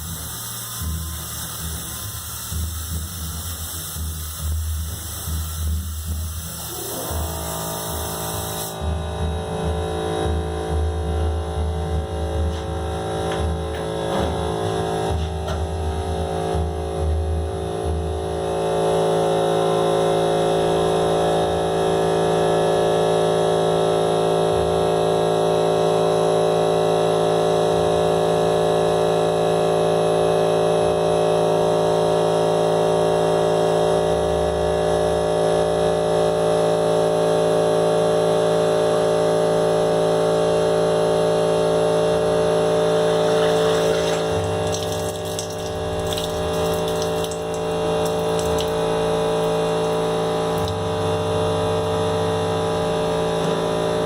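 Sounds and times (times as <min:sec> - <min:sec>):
hair dryer running: 0:43.0 - 0:51.1.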